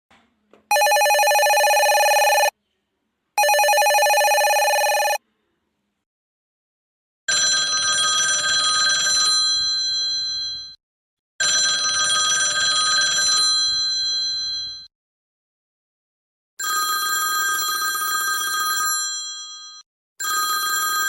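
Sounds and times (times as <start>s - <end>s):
old telephone bell ringing: 0.7s - 2.5s, 3.4s - 5.2s, 16.6s - 21.0s.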